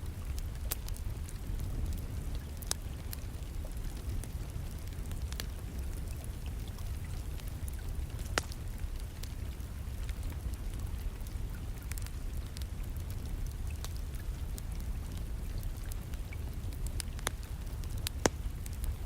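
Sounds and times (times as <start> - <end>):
wood fire crackling: 0.0 - 19.0
sharp pops of fire: 8.2 - 8.6, 18.0 - 18.9.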